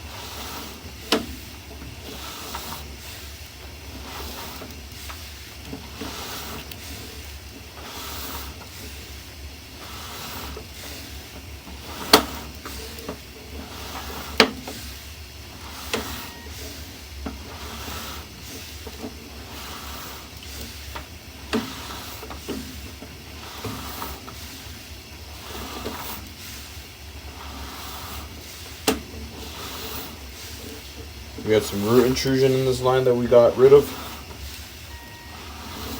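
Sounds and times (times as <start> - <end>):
steady hiss: 0.0 - 35.9
sharp clicks and knocks: 28.8 - 29.1.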